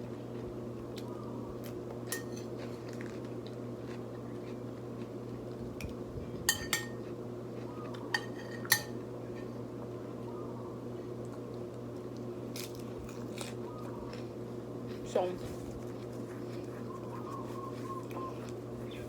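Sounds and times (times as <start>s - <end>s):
low background hum: 0.0s - 19.0s
utensil clinking on ceramic dish: 2.1s - 2.5s, 6.5s - 7.0s.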